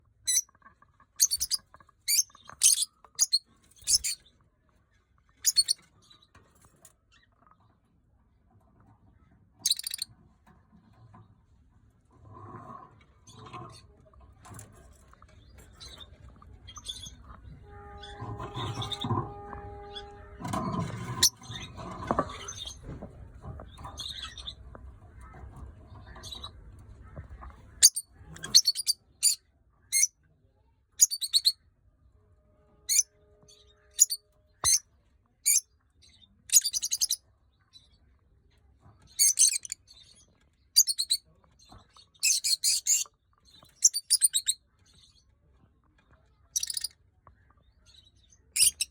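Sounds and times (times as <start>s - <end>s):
bird chirping: 1.2s - 4.2s, 5.4s - 5.9s, 9.6s - 10.0s, 27.7s - 30.1s, 31.0s - 31.6s, 33.9s - 34.8s, 36.5s - 37.2s, 39.2s - 40.1s, 40.8s - 41.2s, 42.2s - 44.6s, 46.6s - 46.9s, 48.6s - 48.9s
lovebird shrill chirps: 5.5s - 5.8s, 9.7s - 10.0s, 46.6s - 46.9s.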